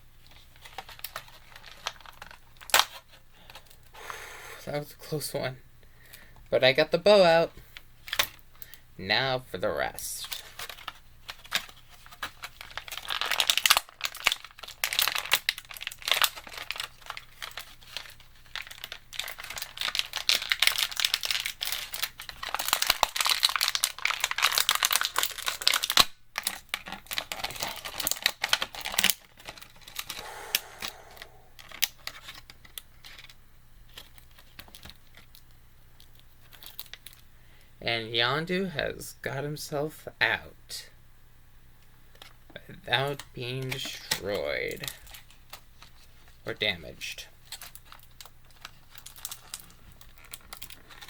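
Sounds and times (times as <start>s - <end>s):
packaging crinkling: 0.3s - 3.6s, 10.2s - 37.3s, 43.1s - 46.4s, 47.4s - 51.0s.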